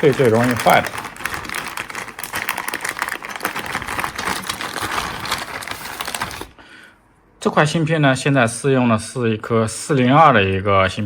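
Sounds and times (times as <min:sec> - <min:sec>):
rummaging through small parts: 0:00.0 - 0:06.5.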